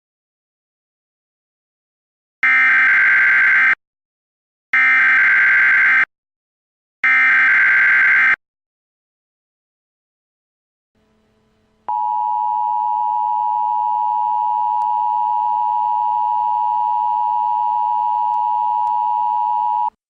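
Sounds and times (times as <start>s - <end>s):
faint hiss: 11.0s - 11.9s.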